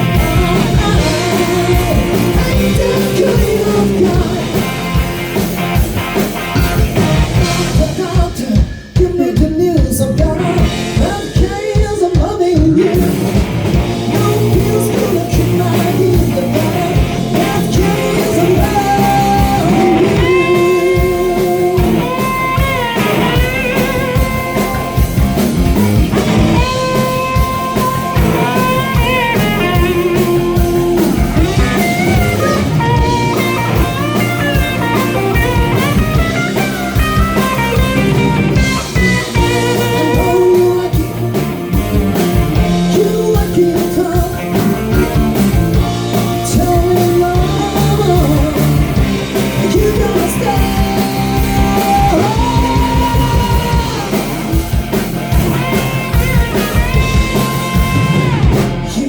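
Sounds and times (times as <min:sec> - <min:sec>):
person singing lead vocal: 0:00.0 - 0:05.1, 0:07.1 - 0:25.0, 0:26.4 - 0:54.5, 0:56.2 - 0:59.0
drum kit: 0:00.0 - 0:59.0
electric guitar: 0:00.0 - 0:59.0
high melodic line bending: 0:13.5 - 0:44.2.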